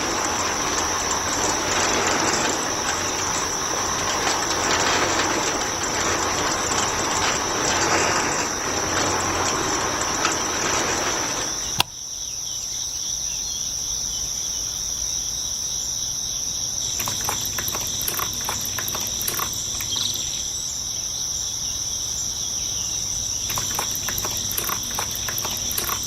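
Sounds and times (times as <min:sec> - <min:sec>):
light ticks and scrapes: 0:00.0 - 0:11.8, 0:17.0 - 0:20.3, 0:23.5 - 0:26.0
crickets trilling: 0:00.0 - 0:26.0.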